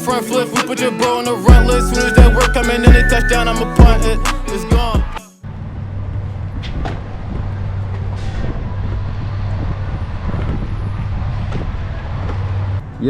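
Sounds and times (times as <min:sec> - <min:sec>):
vehicle engine humming: 0:01.1 - 0:13.0
road noise: 0:03.4 - 0:13.0.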